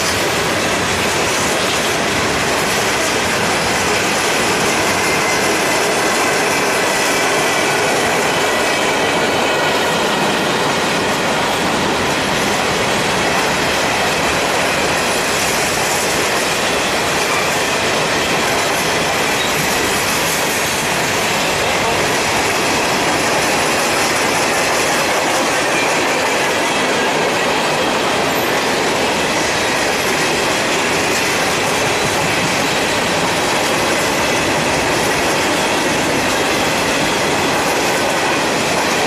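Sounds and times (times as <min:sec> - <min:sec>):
train wheels clattering on rails: 0:00.0 - 0:39.0
wheels squealing on rail: 0:00.0 - 0:39.0.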